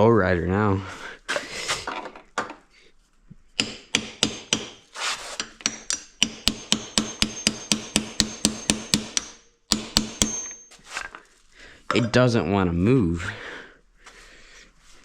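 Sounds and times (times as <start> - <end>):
hammer striking metal: 5.6 - 10.7.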